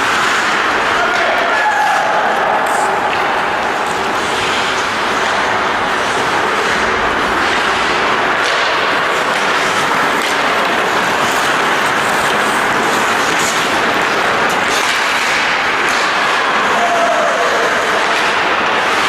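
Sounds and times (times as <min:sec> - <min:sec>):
sharp clicks on ice: 0:00.0 - 0:16.6
hockey rink noisy wash: 0:00.0 - 0:19.0.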